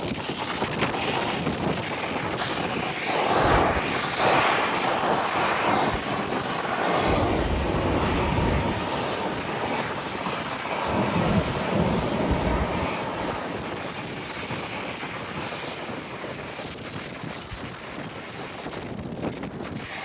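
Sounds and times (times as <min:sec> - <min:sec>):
wind buffeting microphone: 0:00.0 - 0:20.0
jet engine roar: 0:00.7 - 0:16.6.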